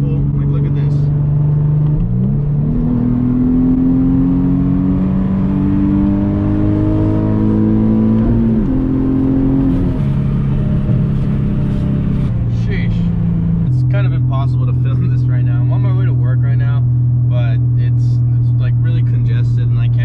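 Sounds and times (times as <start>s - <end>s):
car engine accelerating in cabin: 0.0s - 20.0s.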